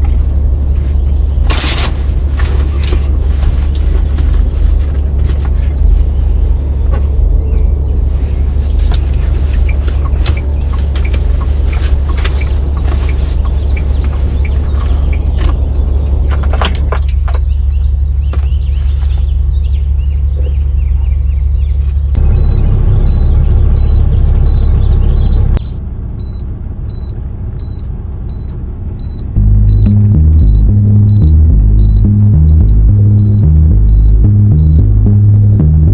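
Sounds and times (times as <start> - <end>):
heavy rain drumming on truck cab: 0.0 - 7.4, 8.1 - 17.4
steady low rumble: 0.0 - 35.9.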